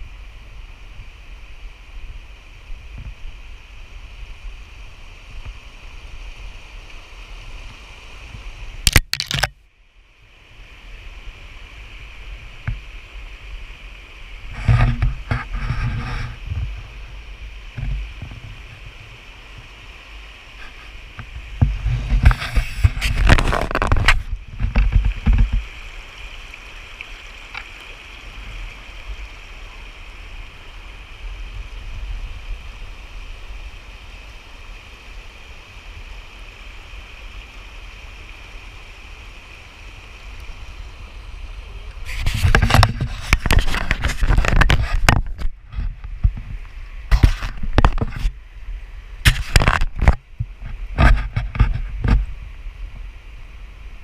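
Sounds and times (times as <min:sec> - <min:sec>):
creek water flowing: 0:00.0 - 0:54.0
rough bursts of noise: 0:14.4 - 0:26.0.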